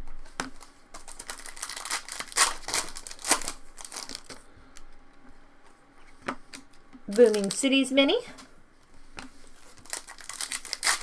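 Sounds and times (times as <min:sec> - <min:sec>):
foil wrapper crinkling: 0:00.6 - 0:04.4, 0:07.1 - 0:07.8, 0:09.5 - 0:11.0.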